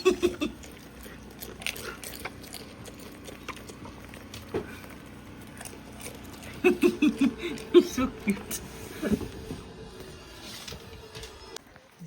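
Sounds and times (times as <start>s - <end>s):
goats chewing and crunching: 0.0s - 12.0s.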